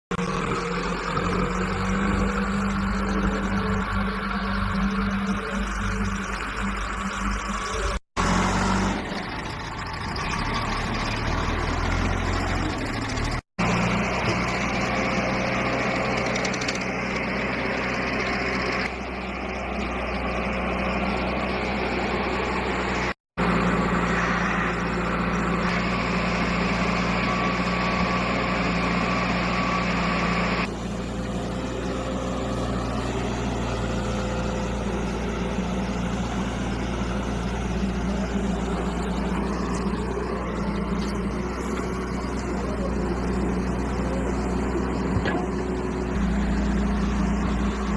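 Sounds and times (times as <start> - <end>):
heavy diesel engine running: 0.1 - 47.9.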